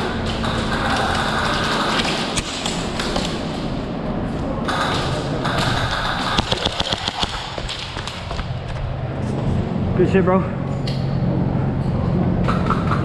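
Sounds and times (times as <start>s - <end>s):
constant noisy din: 0.0s - 13.0s
airsoft guns firing: 4.7s - 8.2s
pellets striking: 5.5s - 8.3s.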